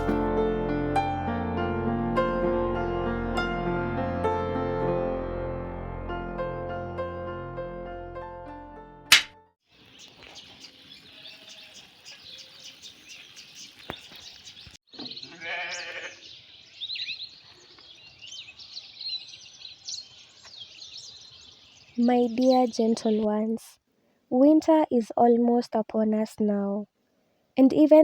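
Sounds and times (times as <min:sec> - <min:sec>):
piano music: 0:00.0 - 0:09.6
sharp click: 0:09.1 - 0:09.4
birds chirping: 0:09.7 - 0:23.6
farm animal bleating: 0:15.0 - 0:16.3.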